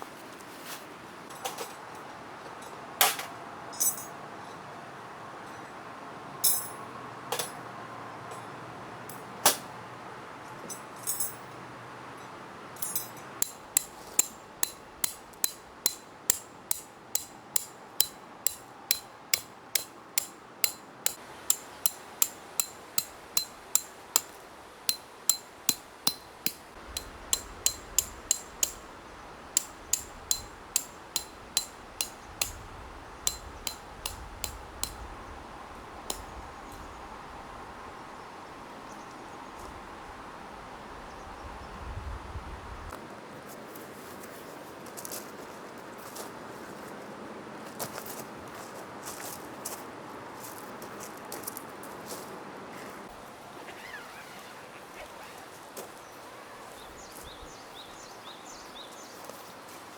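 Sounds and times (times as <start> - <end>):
hammer striking tent pegs: 13.4 - 24.3, 24.9 - 28.9, 29.6 - 32.6, 33.2 - 35.0.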